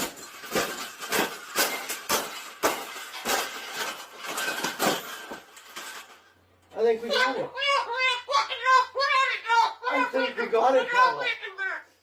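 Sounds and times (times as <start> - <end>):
sharp knocks and clatters: 0.0 - 6.5.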